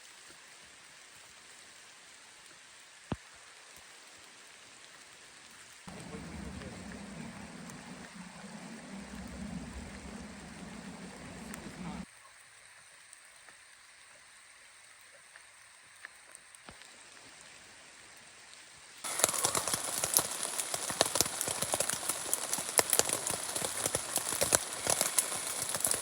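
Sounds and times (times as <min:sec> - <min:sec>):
rain falling: 0:05.9 - 0:12.1, 0:19.0 - 0:26.0.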